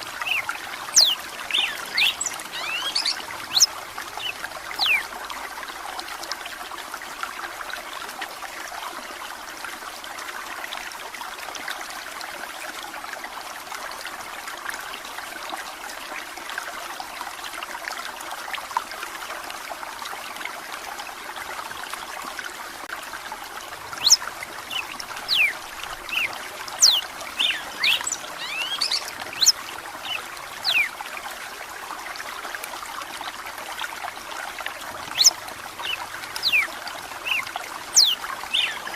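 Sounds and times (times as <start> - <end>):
water trickling: 0.0 - 12.1, 12.7 - 38.9
bird whistling: 0.2 - 5.0, 24.0 - 25.5, 26.1 - 30.9, 38.0 - 38.9.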